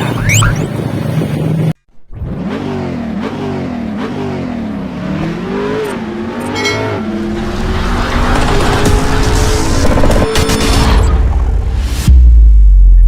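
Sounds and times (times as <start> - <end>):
motorcycle engine revving: 1.2 - 10.8.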